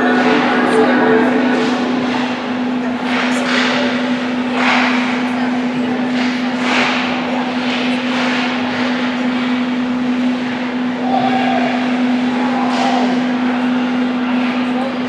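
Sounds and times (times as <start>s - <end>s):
steady low hum: 0.0s - 4.6s.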